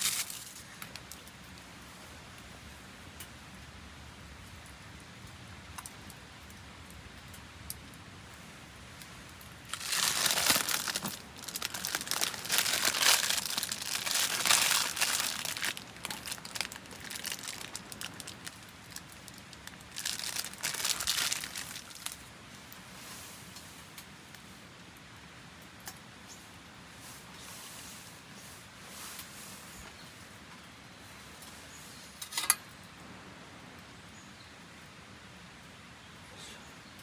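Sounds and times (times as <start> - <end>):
crinkly material crumpling: 0.0 - 1.6, 8.3 - 24.4, 27.0 - 30.4.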